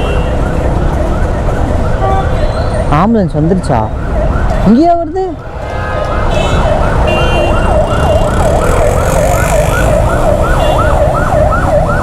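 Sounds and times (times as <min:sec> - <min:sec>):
ambulance siren yelping: 0:00.0 - 0:12.0
road traffic rumble: 0:00.0 - 0:12.0.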